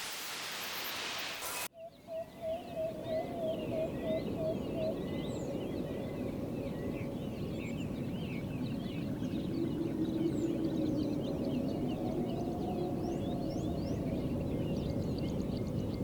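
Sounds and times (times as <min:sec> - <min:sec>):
steady hiss: 0:00.0 - 0:01.7
birds chirping: 0:01.4 - 0:16.0
low repeated bird call: 0:01.5 - 0:16.0.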